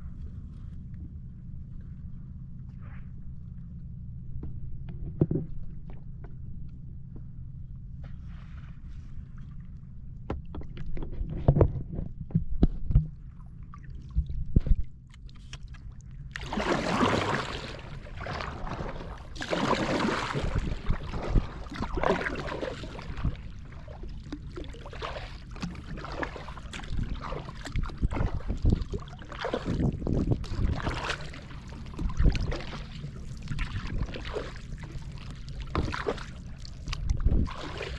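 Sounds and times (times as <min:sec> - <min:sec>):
steady low rumble: 0:00.0 - 0:37.9
paddle splashing water: 0:13.3 - 0:37.9.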